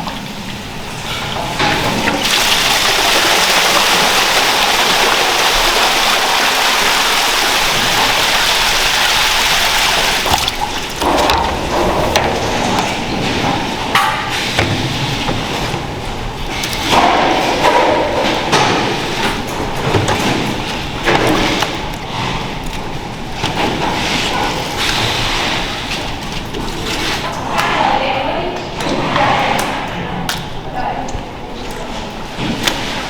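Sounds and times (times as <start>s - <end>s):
water rushing from hose: 1.8s - 11.2s
equipment clattering and knocking: 10.2s - 27.4s.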